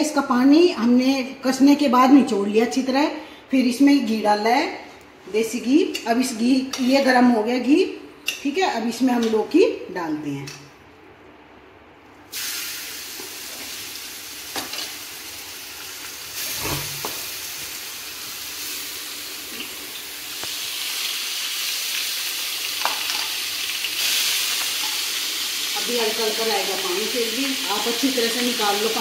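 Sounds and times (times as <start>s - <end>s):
gourd sizzling in ghee: 12.3s - 29.0s.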